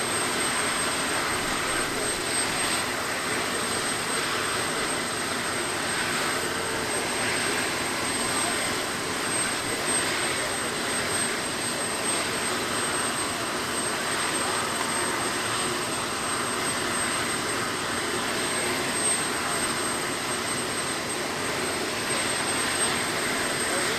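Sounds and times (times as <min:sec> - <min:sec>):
jet engine rushing: 0:00.0 - 0:23.9.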